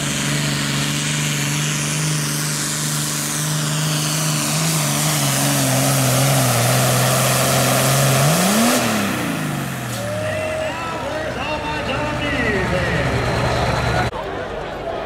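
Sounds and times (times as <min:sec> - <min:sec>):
diesel tractor engine at high revs: 0:00.0 - 0:14.2.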